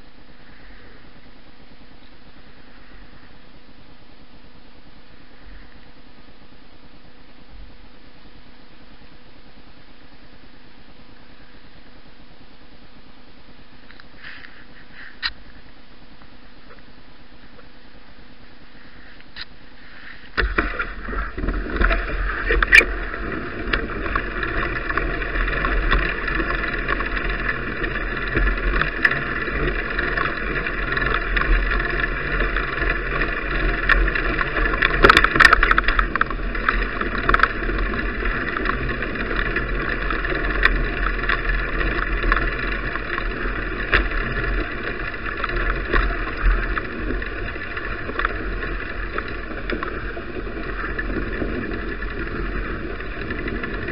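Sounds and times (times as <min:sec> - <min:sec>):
bicycle tyre noise: 0:00.0 - 0:01.3, 0:13.9 - 0:15.8, 0:17.4 - 0:53.9
low rumble: 0:00.0 - 0:53.9
clicks and rattles from bumps: 0:20.4 - 0:53.9.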